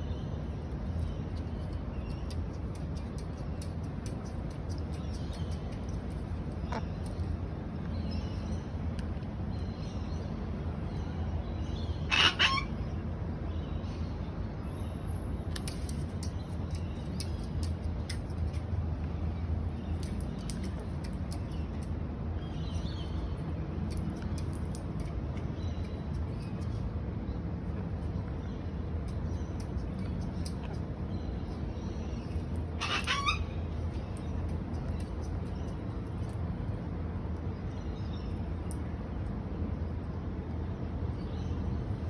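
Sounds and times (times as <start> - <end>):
steady low rumble: 0.0 - 42.0
faint high bird calls: 12.0 - 12.8, 32.8 - 33.6
cockatoo screech: 12.1 - 12.7, 32.8 - 33.4.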